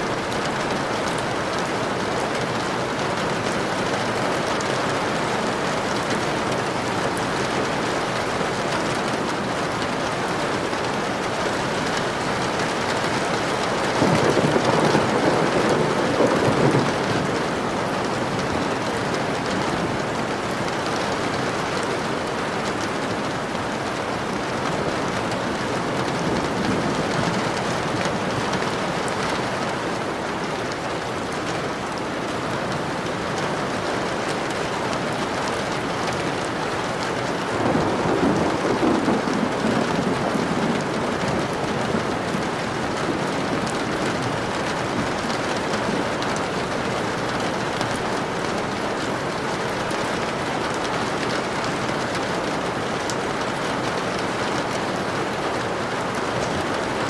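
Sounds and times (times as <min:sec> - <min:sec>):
rain falling: 0:00.0 - 0:57.0
thunder rumbling: 0:11.9 - 0:20.0, 0:37.4 - 0:48.8.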